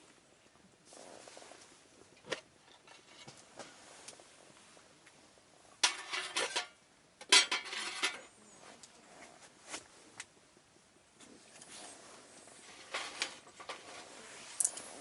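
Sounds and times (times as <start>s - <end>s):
metal cookware clattering: 5.8s - 8.3s.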